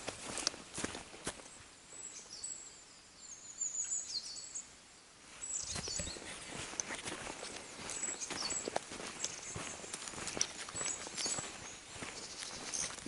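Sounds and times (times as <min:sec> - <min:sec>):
footsteps: 0:00.0 - 0:01.5, 0:05.3 - 0:13.0
small birds chirping: 0:00.0 - 0:13.0.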